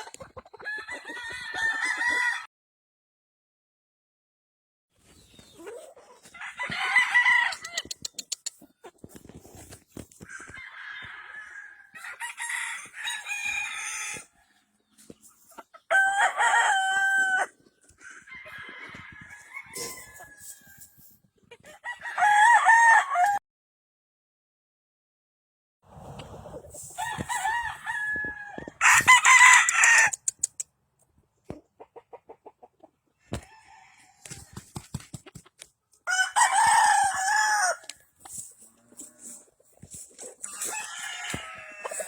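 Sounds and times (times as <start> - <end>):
chickens clucking and calling: 0.0 - 2.4, 5.1 - 22.0, 31.2 - 34.4, 36.8 - 42.0
roosters crowing: 0.6 - 2.5, 6.2 - 7.9, 10.2 - 14.6, 15.8 - 20.9, 21.7 - 23.4, 26.9 - 30.2, 33.3 - 34.7, 36.1 - 38.0, 38.9 - 42.0.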